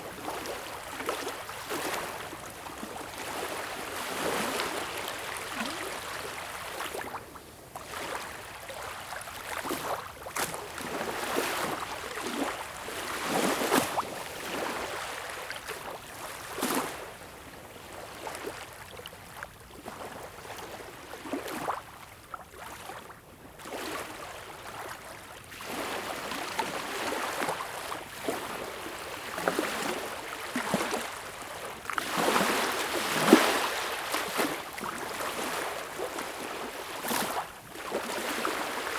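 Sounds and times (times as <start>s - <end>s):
sea waves lapping and splashing: 0.1s - 7.2s, 7.8s - 17.0s, 23.6s - 38.9s.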